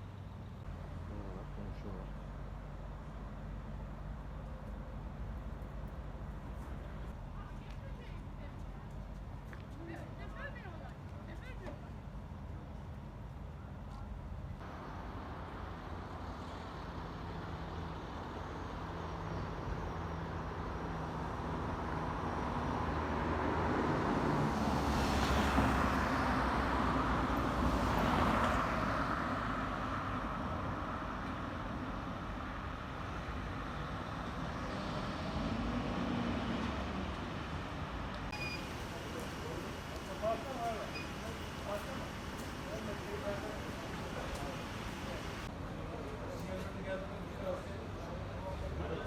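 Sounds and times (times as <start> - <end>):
vehicle passing close: 33.7 - 40.7.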